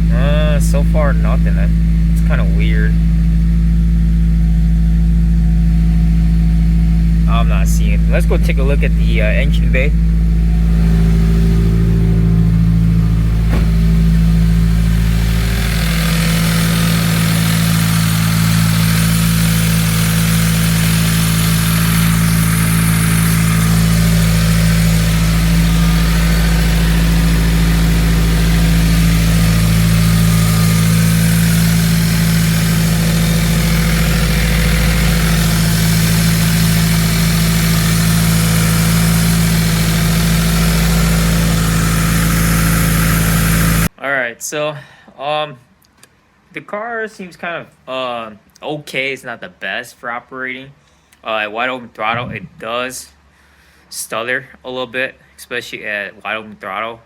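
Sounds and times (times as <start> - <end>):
car engine idling: 0.0 - 43.9
engine hiss: 9.5 - 43.9.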